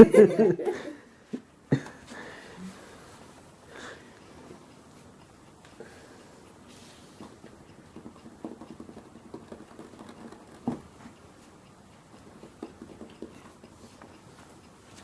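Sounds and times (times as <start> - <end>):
cat tapping and pattering: 7.2 - 15.0.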